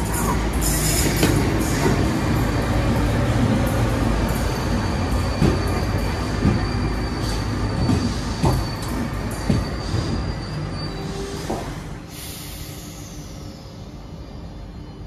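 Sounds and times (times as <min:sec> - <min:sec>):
train rumbling and braking: 0:00.0 - 0:15.0
thin high brake squeal: 0:04.6 - 0:15.0.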